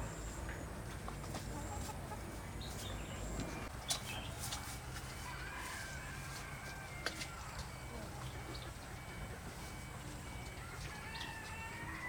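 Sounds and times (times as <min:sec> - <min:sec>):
chickens clucking: 0:01.0 - 0:02.8.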